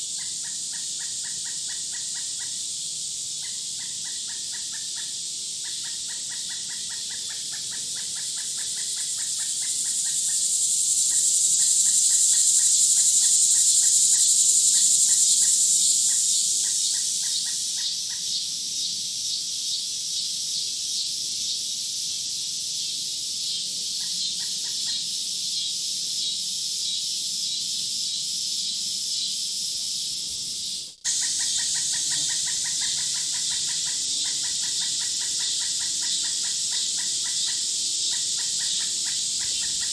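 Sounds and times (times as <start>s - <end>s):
high insect chorus: 0.0s - 39.9s
repeated bird-like calls: 31.1s - 39.9s.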